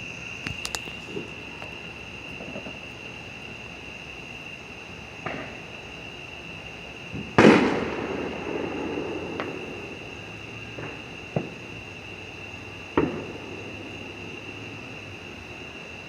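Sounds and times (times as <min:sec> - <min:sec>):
fireworks popping: 0:00.0 - 0:03.0
crickets chirring: 0:00.0 - 0:16.0
thunder crack and rumble: 0:07.2 - 0:10.0.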